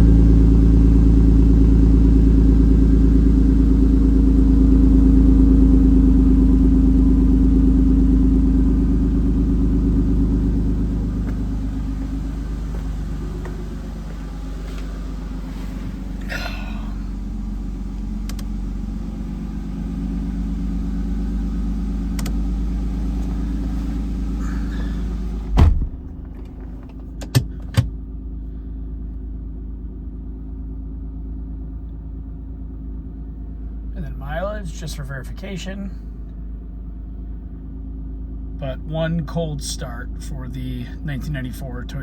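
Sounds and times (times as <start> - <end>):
car engine idling: 0.0 - 42.0
sharp clicks: 22.2 - 22.4
loud thump: 25.4 - 26.4.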